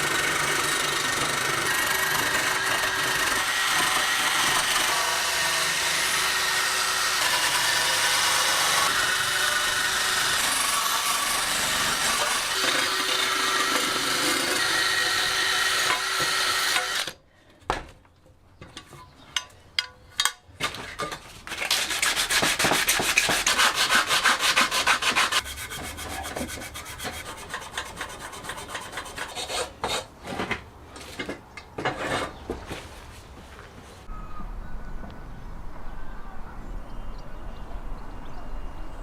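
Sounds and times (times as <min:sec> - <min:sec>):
power tool running: 0:00.0 - 0:17.2.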